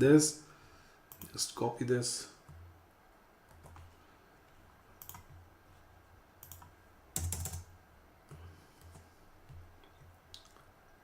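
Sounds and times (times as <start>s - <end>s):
low steady hum: 0.0s - 11.0s
computer keyboard typing: 3.5s - 3.9s, 5.0s - 5.4s, 6.4s - 7.7s.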